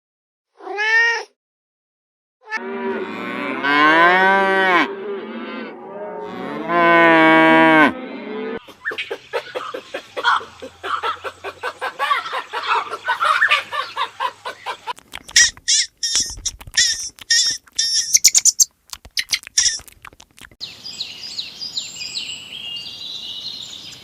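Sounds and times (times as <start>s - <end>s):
cow mooing: 2.5s - 8.6s.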